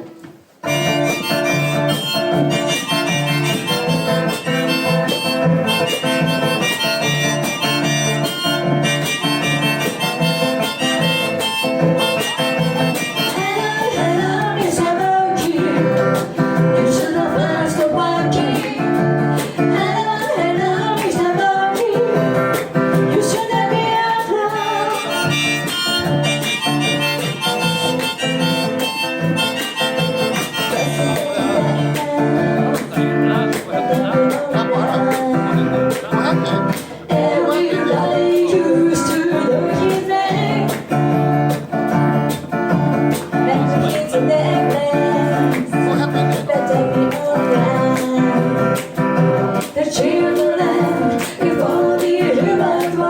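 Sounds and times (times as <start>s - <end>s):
instrumental band music: 0.0s - 53.0s.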